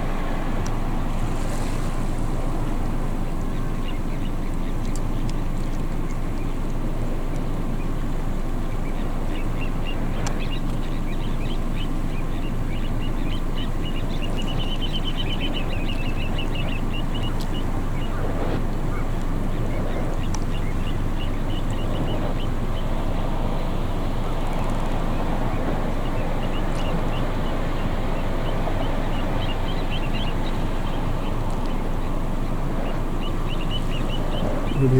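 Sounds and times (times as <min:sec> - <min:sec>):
steady low rumble: 0:00.0 - 0:34.9
plovers chirping: 0:32.8 - 0:34.9
bird high piping calls: 0:33.0 - 0:34.9.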